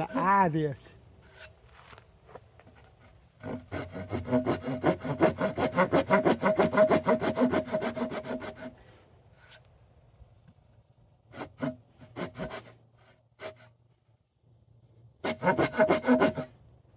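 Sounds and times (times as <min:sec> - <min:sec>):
hand saw cutting wood: 0:00.0 - 0:00.4, 0:01.2 - 0:01.6, 0:03.0 - 0:08.8, 0:11.3 - 0:13.7, 0:15.2 - 0:16.5.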